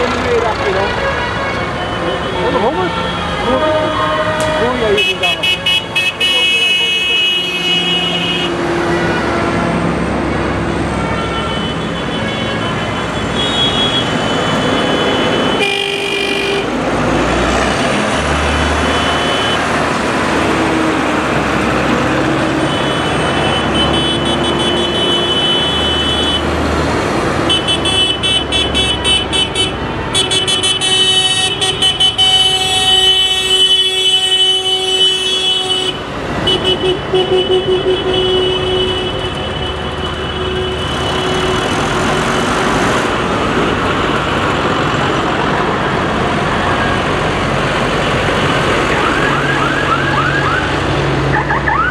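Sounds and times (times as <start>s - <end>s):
tractor engine rumble: 0.0s - 1.8s
horns sounding: 0.0s - 16.8s, 21.8s - 26.6s, 27.4s - 42.5s.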